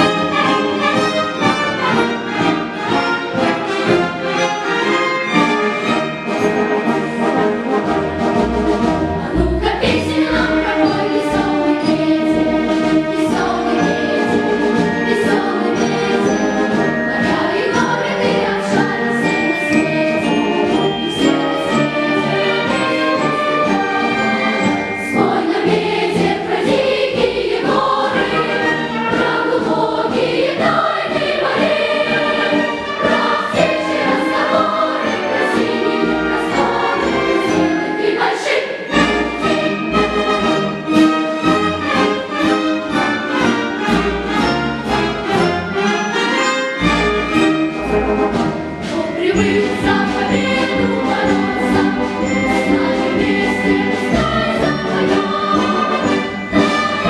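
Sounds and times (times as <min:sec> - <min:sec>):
children's choir singing: 0:00.0 - 0:57.0
instrumental accompaniment: 0:00.0 - 0:57.0.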